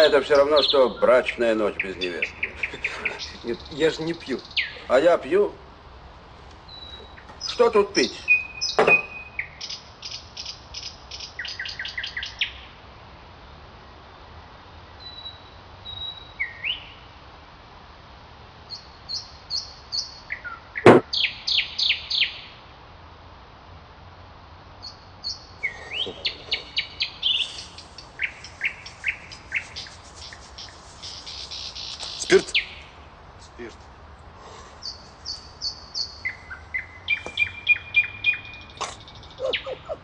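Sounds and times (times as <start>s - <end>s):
small birds chirping: 0.0s - 12.6s, 18.7s - 22.5s, 24.8s - 40.0s.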